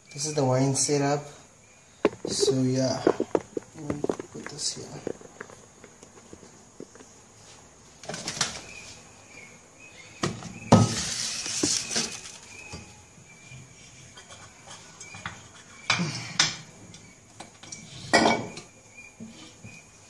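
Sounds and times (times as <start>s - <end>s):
handling rustle: 2.0s - 7.6s, 11.2s - 12.7s.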